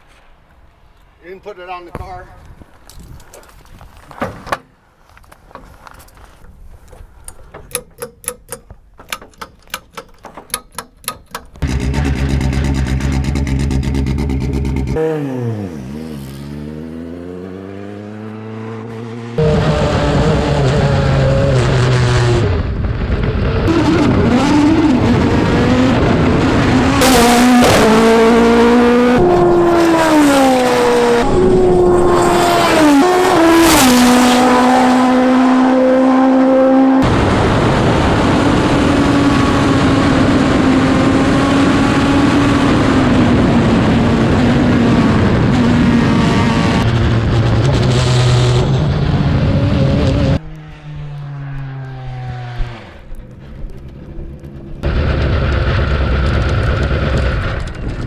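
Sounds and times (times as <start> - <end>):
race car engine revving: 11.6 - 58.0.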